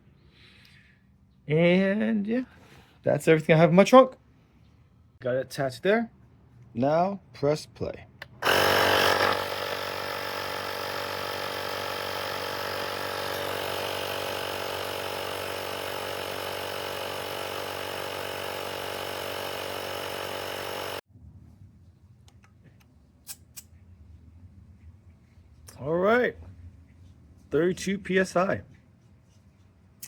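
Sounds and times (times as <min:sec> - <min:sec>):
small air compressor running: 0:08.3 - 0:21.0.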